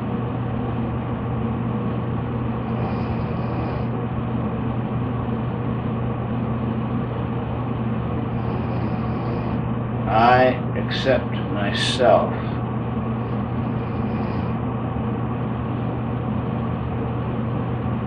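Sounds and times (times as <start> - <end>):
machine humming and rushing: 8.3 - 10.0, 12.6 - 14.8.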